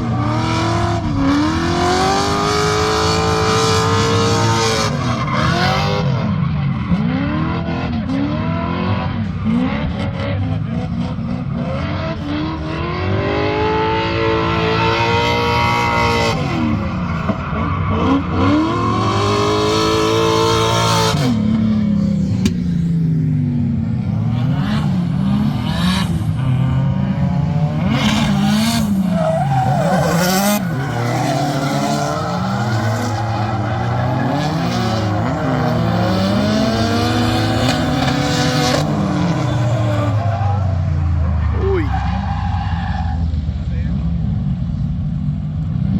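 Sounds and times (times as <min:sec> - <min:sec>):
car engine revving: 0:00.0 - 0:45.9
hissing tyre noise: 0:27.9 - 0:43.6.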